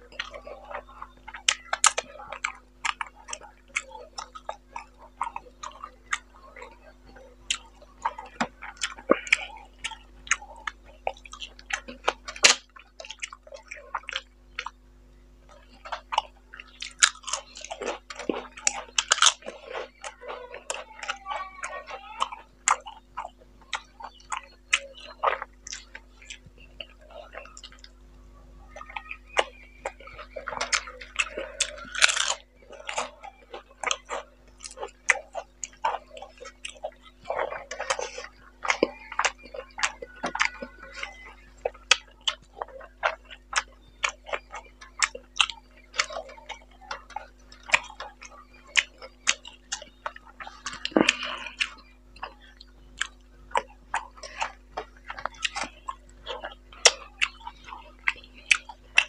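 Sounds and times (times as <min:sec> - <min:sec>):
lip smacks and mouth clicks: 0:28.8 - 0:59.0.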